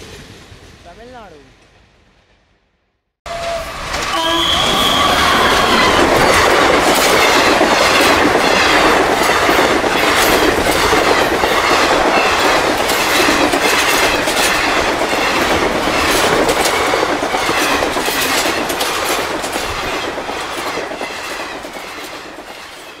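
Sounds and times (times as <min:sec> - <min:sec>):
train passing at speed: 0:00.0 - 0:23.0
train horn: 0:03.3 - 0:06.4
wheels clattering over rail joints: 0:03.3 - 0:23.0.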